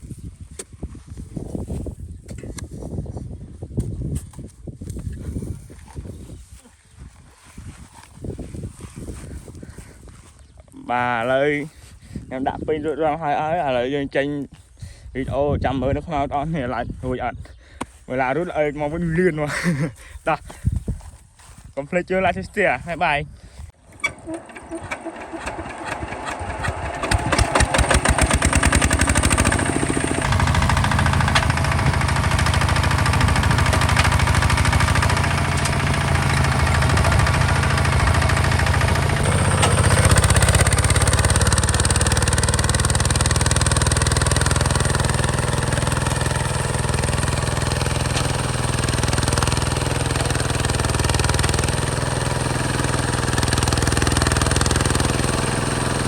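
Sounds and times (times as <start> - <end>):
tractor diesel engine starting: 23.8 - 56.0.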